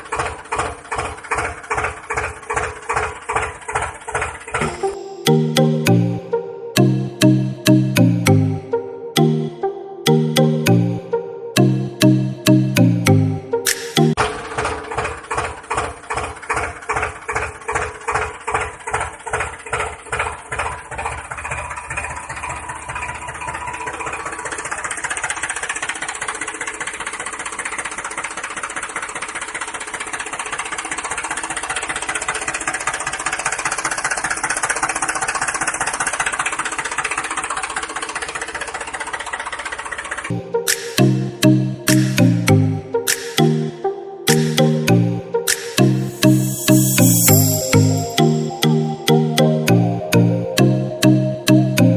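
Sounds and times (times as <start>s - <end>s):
engine chugging: 0.0s - 4.9s, 14.1s - 42.9s.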